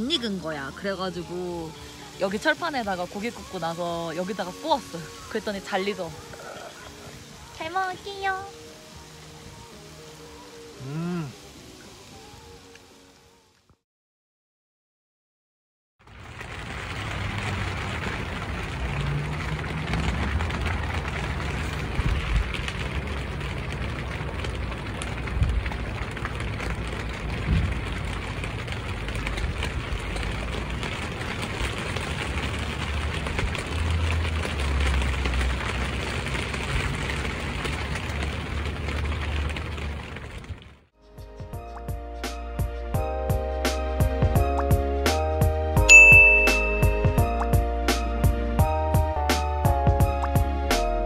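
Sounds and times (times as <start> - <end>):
raindrops ticking: 0.0 - 11.9, 16.0 - 51.0
steady rain hissing: 0.0 - 13.7, 16.0 - 40.9.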